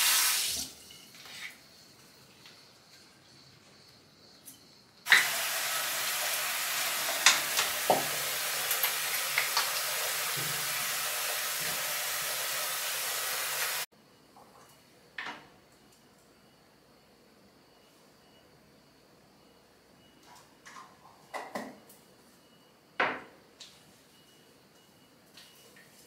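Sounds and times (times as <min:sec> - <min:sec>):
hair dryer blowing: 0:05.1 - 0:13.9.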